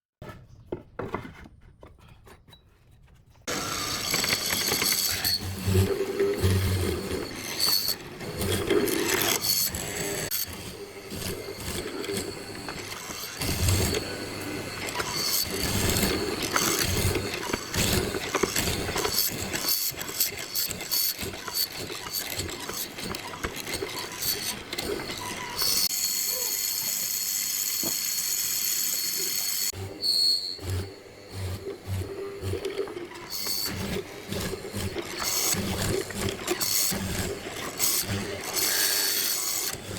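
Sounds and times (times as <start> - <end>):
knocks and clatter of tools: 0.2 - 3.5
machine whirring: 3.5 - 39.9.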